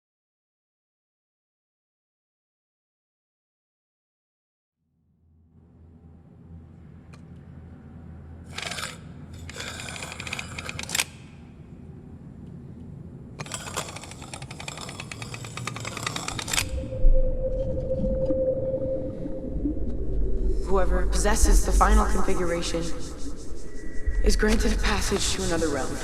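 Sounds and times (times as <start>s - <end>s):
low rumbling drone: 5.2s - 26.0s
steady hum-like tone: 5.3s - 26.0s
rapid rattling clicks: 8.5s - 11.3s, 13.4s - 16.8s.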